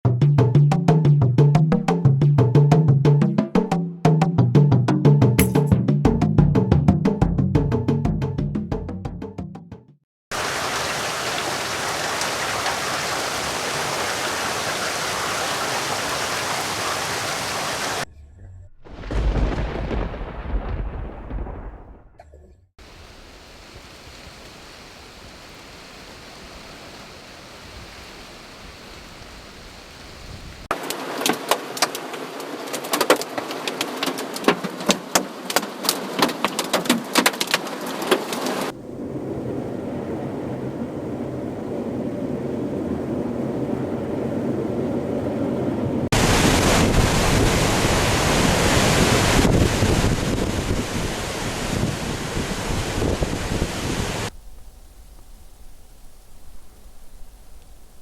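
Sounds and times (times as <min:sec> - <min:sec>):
rain hiss: 0:10.3 - 0:18.0, 0:22.8 - 0:36.8, 0:46.1 - 0:58.0
thunder rumble: 0:17.9 - 0:27.0, 0:38.7 - 0:58.0
wind rushing: 0:38.7 - 0:58.0.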